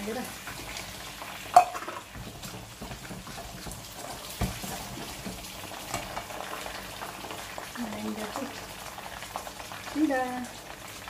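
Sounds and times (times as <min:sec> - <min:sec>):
chilies sizzling in hot oil: 0:00.0 - 0:11.0.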